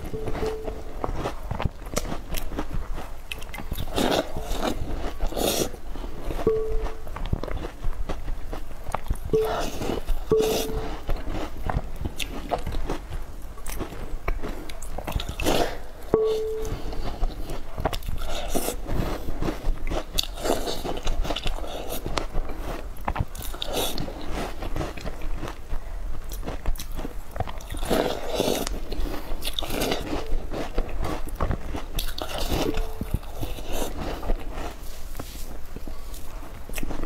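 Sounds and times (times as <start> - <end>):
biting and chewing cookies: 0.0 - 37.0.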